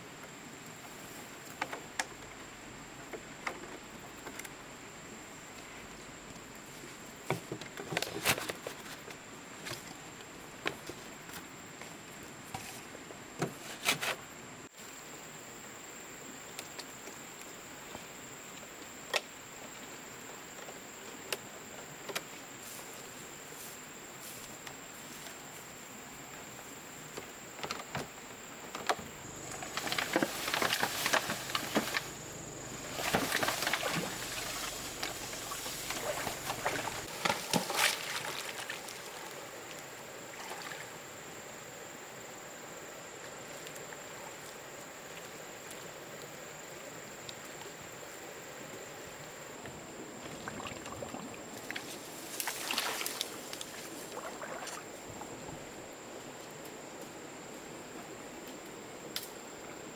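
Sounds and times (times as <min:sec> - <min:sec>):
high insect drone: 0:14.7 - 0:59.9
splashing or rustling handling noise: 0:28.7 - 0:39.7, 0:50.2 - 0:55.5.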